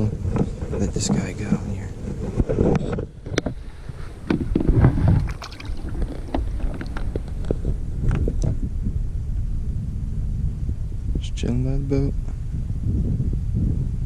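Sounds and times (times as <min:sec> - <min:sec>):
wind buffeting microphone: 0:00.0 - 0:14.0
water slapping hull: 0:04.3 - 0:07.7.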